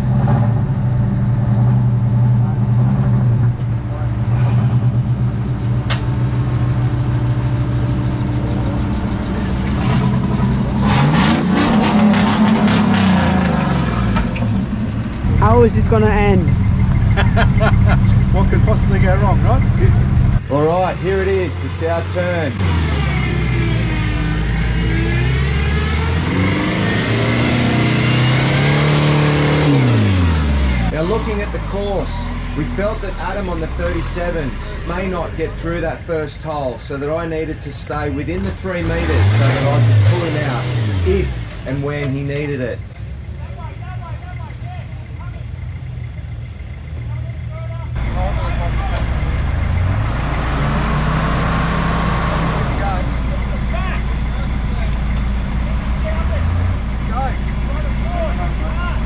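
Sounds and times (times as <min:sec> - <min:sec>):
excavator diesel engine running: 0:00.6 - 0:21.3, 0:41.0 - 0:51.2, 0:52.8 - 0:59.0.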